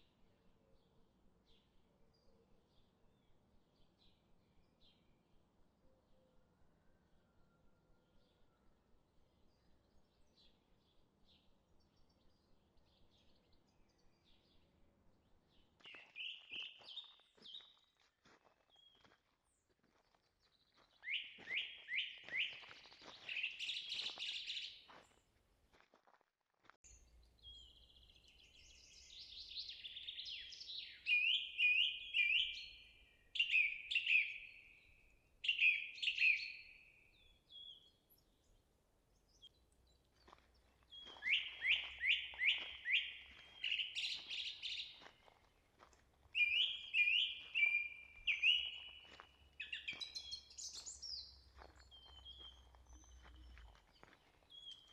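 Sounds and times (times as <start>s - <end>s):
songbird singing: 15.5s - 17.8s, 20.4s - 25.2s, 26.9s - 54.9s.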